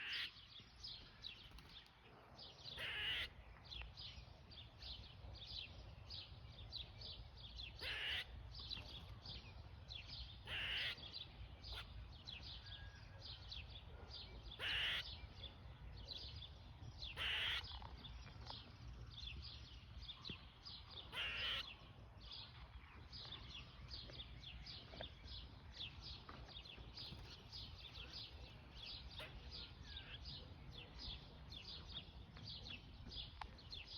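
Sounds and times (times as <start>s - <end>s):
squirrel alarm calls: 0.0s - 0.4s, 2.7s - 3.4s, 7.7s - 8.5s, 10.4s - 12.0s, 14.6s - 15.3s, 17.1s - 17.8s, 21.0s - 21.8s.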